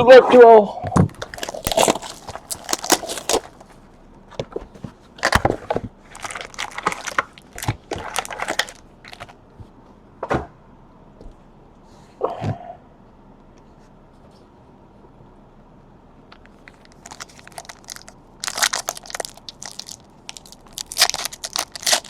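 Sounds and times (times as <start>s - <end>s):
packaging torn and crinkled: 1.1s - 3.8s, 5.2s - 9.4s, 16.7s - 22.0s.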